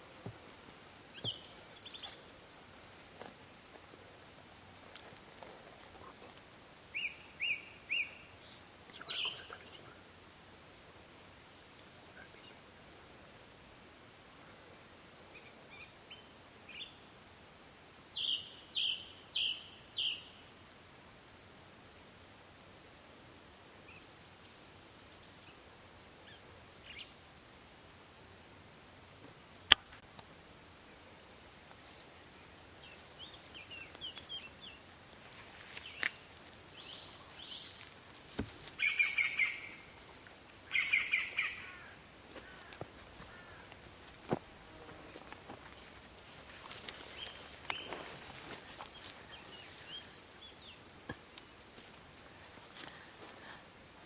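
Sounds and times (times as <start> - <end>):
small songbirds chirping: 0.0 - 21.2, 21.9 - 54.0
bird chirping: 1.1 - 2.3, 6.0 - 10.0, 38.7 - 40.0, 40.7 - 41.9
rapid twittering birdsong: 6.0 - 20.5, 38.6 - 40.0, 40.6 - 43.8, 47.0 - 52.6
faint clicks: 46.8 - 47.9.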